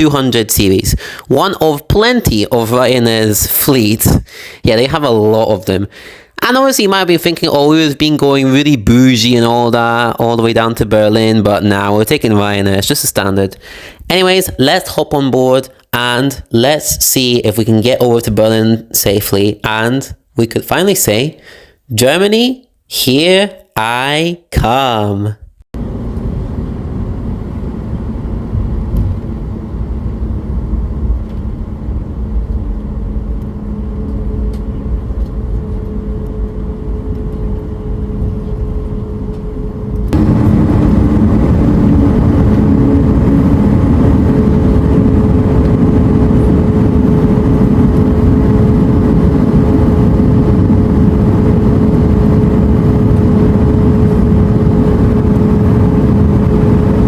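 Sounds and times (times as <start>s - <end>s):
jet airliner rush and hum: 0.0s - 7.7s, 25.8s - 57.0s.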